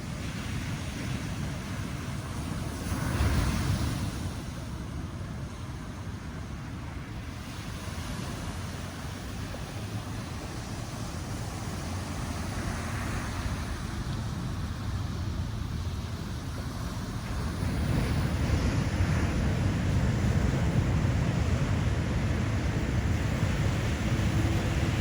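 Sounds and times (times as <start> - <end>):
heavy ocean surf rumbling: 0.0 - 25.0
wind on microphone: 7.4 - 25.0.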